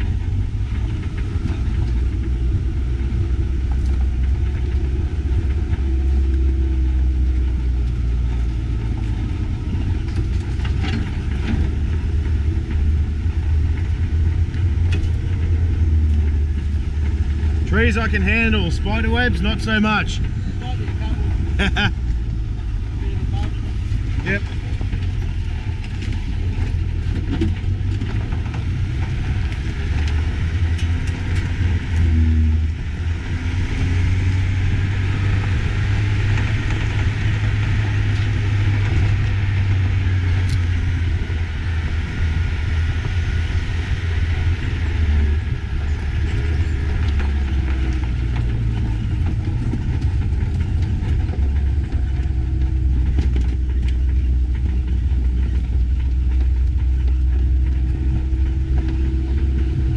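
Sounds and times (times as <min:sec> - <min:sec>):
vehicle engine and road rumble: 0:00.0 - 0:59.9.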